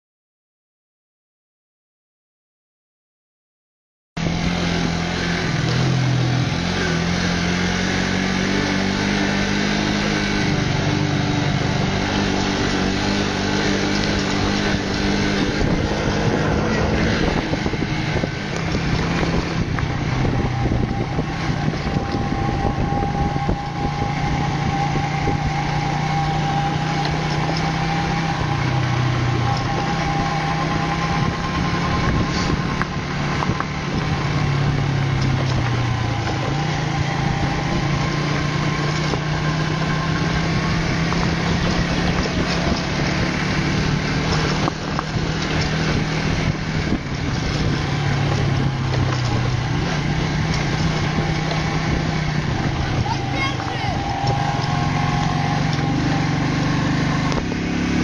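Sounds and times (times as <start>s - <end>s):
small motorcycle engine running: 4.2s - 58.0s
wind rushing past: 4.3s - 26.7s.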